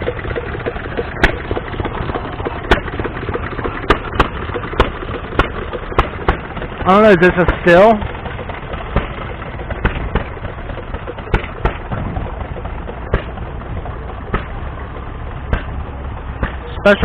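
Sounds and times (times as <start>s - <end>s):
low outdoor rumble: 0.0s - 17.0s
sharp pops and clicks: 1.0s - 8.0s, 8.7s - 13.6s, 14.2s - 14.6s, 15.4s - 16.8s.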